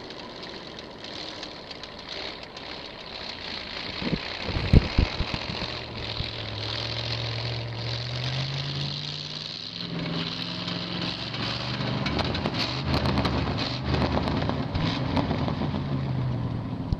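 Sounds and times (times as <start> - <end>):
sharp clicks and knocks: 0.0 - 7.2, 10.0 - 15.7
tractor engine running: 0.0 - 16.9.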